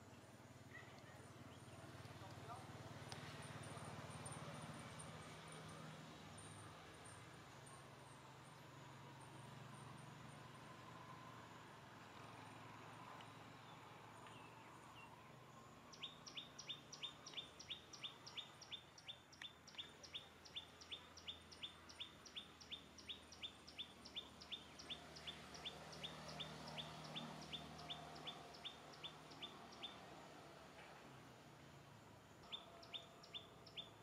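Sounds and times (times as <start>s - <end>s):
bird chirping: 13.6s - 30.2s, 32.4s - 34.0s.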